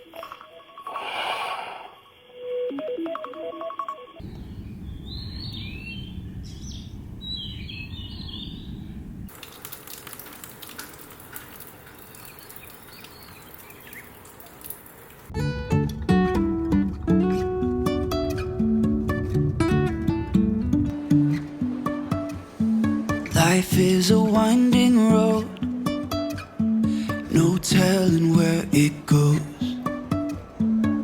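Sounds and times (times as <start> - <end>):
birds chirping: 4.2 - 9.3, 12.0 - 14.6
low rumble: 4.2 - 9.3
hissing ambience: 4.2 - 9.7
acoustic guitar music: 15.3 - 31.0.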